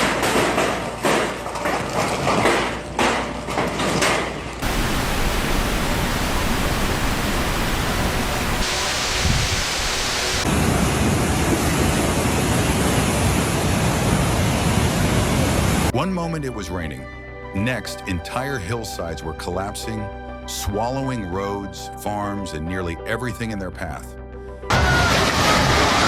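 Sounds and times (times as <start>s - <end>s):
heavy water rushing: 4.6s - 15.9s.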